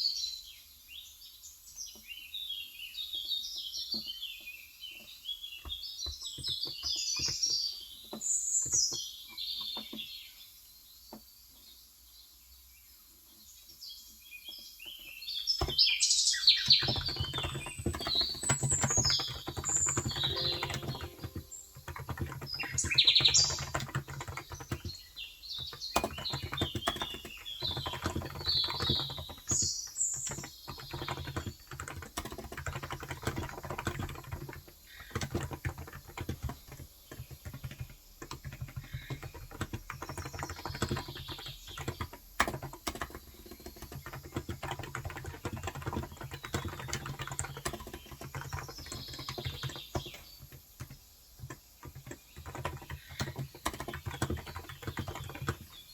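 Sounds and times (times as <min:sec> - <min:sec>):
fast typing on keyboard: 0:05.0 - 0:10.2, 0:15.3 - 0:55.9
birds chirping: 0:14.5 - 0:55.9.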